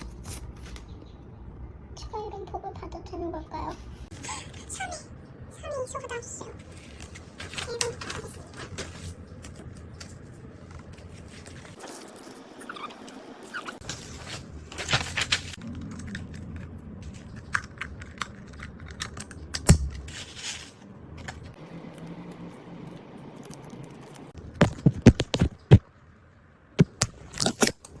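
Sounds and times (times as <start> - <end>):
plastic packaging rustling: 6.6 - 12.5, 13.8 - 21.6.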